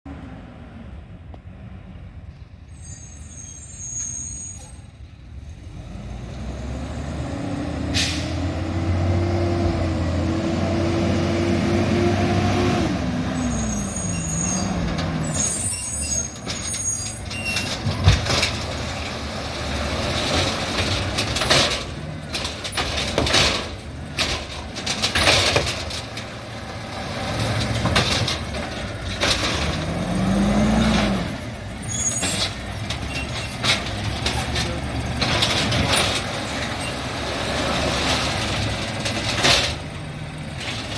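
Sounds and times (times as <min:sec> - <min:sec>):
high squeals: 0:02.7 - 0:04.9, 0:13.3 - 0:18.0, 0:31.8 - 0:33.6
garbage truck engine revving: 0:05.4 - 0:40.9
metal clanks and bangs: 0:13.4 - 0:40.9.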